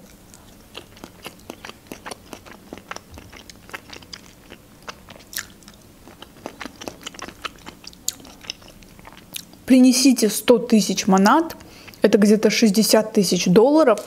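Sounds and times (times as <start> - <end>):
chewing with wet mouth clicks: 0.0 - 9.6, 11.1 - 12.1.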